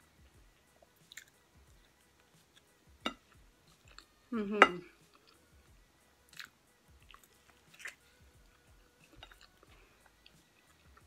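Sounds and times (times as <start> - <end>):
person chewing crunchy food: 0.4 - 4.1, 6.3 - 11.0.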